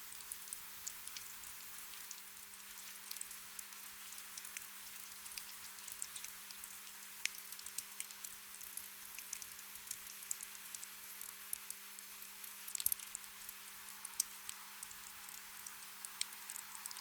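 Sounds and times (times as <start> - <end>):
gentle rain hiss: 0.0 - 17.0
rain drop ticks: 0.1 - 17.0.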